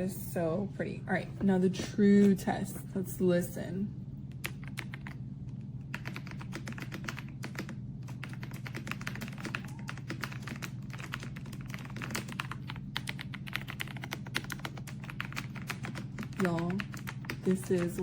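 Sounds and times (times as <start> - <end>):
steady low hum: 0.0 - 18.0
mechanical keyboard typing: 4.4 - 5.2, 5.9 - 18.0.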